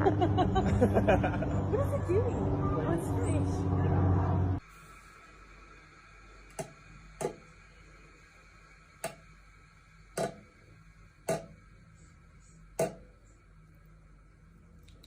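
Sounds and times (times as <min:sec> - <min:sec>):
faint steady hum: 0:04.5 - 0:15.0.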